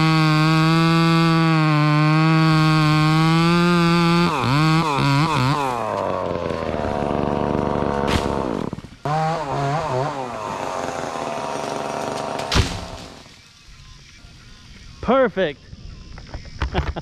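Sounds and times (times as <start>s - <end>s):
chainsaw cutting wood: 0.0s - 13.4s
loud sharp thump: 12.4s - 13.2s.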